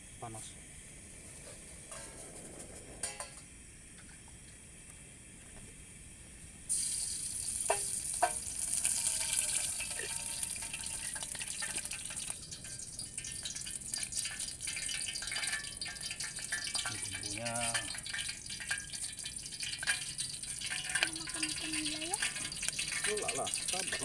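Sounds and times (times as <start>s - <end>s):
pan sizzling: 0.0s - 4.3s, 6.7s - 24.0s
utensil clinking on pan: 3.0s - 3.5s, 7.7s - 24.0s.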